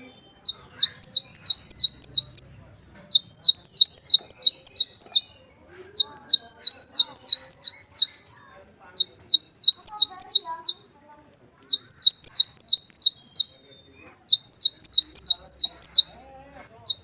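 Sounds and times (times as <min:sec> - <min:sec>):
bird singing high notes: 0:00.0 - 0:02.5, 0:03.2 - 0:05.4, 0:06.0 - 0:08.2, 0:09.0 - 0:10.9, 0:11.7 - 0:16.2.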